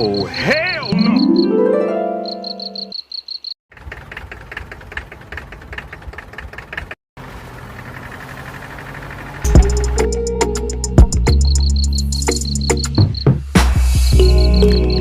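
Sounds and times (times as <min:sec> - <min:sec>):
loud sound with held tones: 0:00.2 - 0:02.9
small tractor engine putter: 0:03.8 - 0:07.0.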